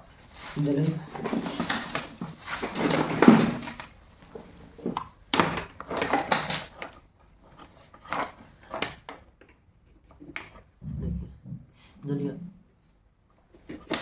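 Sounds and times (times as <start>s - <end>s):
knocks and clunks from handling: 1.1s - 6.9s.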